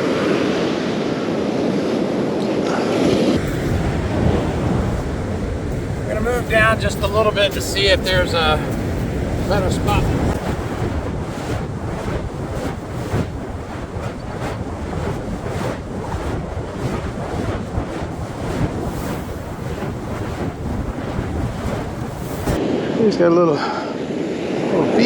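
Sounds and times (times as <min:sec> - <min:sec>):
wind buffeting microphone: 0:03.3 - 0:22.6
surf washing onto beach: 0:03.4 - 0:22.6.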